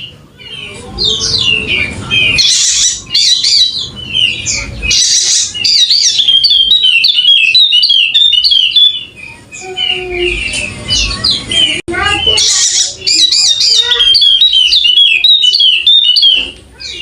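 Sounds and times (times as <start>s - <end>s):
bird twittering song: 0.0s - 17.0s.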